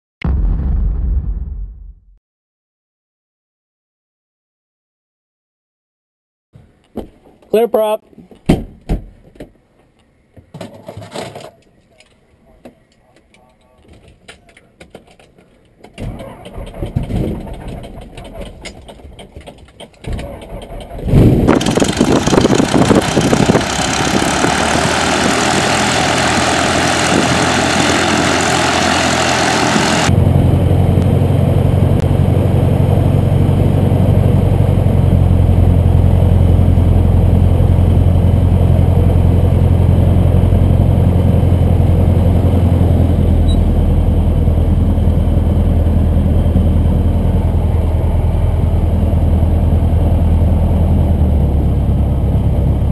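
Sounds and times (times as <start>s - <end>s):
aircraft engine starting and running: 15.9s - 52.9s
muffled low drone: 27.0s - 52.9s.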